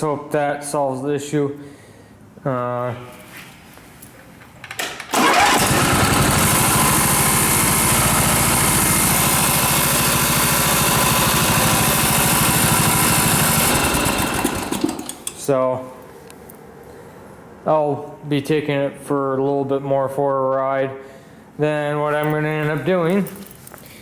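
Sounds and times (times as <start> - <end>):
starter cranking engine: 5.1 - 15.4
tractor engine running: 5.1 - 15.4.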